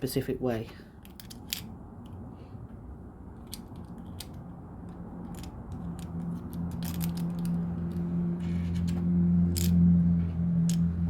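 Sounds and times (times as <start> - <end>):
plastic pieces clicking: 1.0 - 1.7, 3.5 - 8.0.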